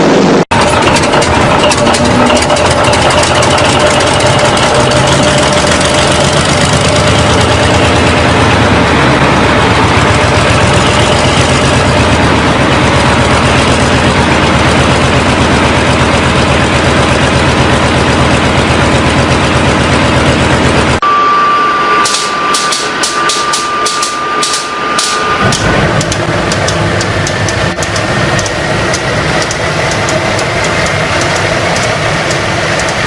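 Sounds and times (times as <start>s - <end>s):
loud engine running: 0.0s - 33.0s
low engine sound: 0.0s - 33.0s
thin steady whine: 1.4s - 33.0s
sharp clicks: 22.0s - 33.0s.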